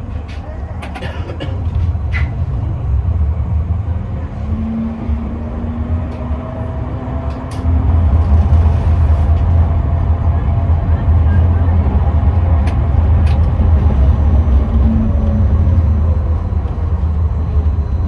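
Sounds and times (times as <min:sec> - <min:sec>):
tram low rumble: 0:00.0 - 0:18.0
faint whine: 0:07.6 - 0:18.0.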